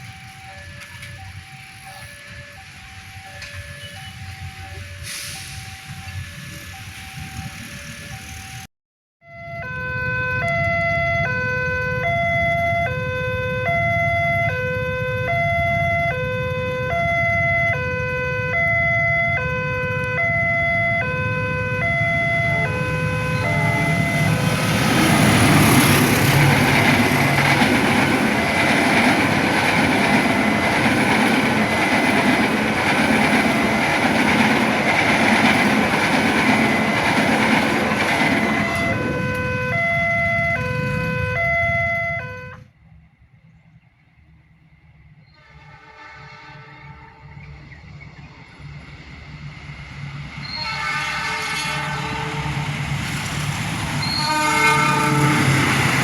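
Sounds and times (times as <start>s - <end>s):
train rumbling on rails: 0.0s - 8.7s, 9.6s - 56.0s
two-tone crossing alarm: 0.0s - 42.8s, 54.0s - 56.0s.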